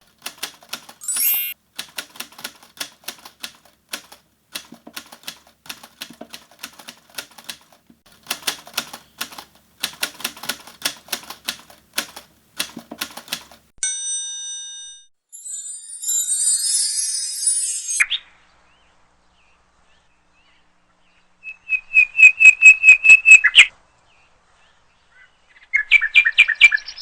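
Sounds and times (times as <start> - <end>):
typewriter keys clacking: 0.0 - 13.7.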